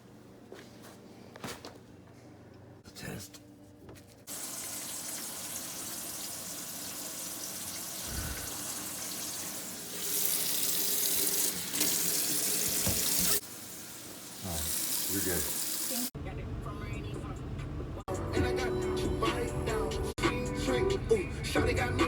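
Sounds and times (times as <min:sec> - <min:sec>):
tap water rushing into sink: 0:04.3 - 0:13.4.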